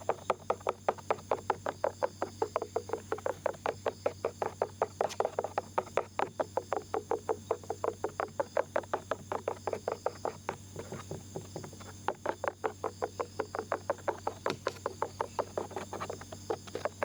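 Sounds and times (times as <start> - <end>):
ear pick scraping: 9.1 - 17.0.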